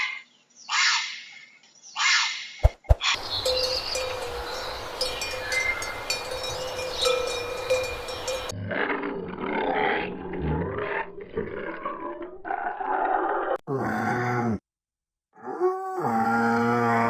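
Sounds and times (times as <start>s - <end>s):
bird chirps: 0.0s - 8.5s
animal grunting and growling: 8.6s - 14.6s.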